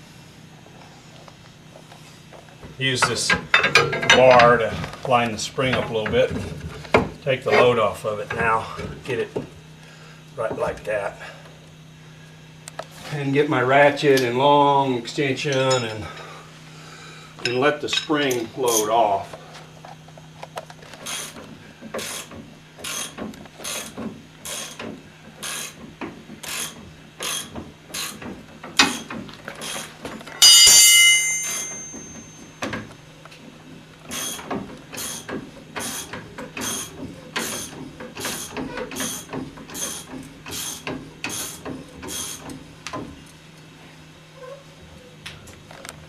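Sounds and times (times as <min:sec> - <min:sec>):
loud metallic clang: 0:30.4 - 0:32.6.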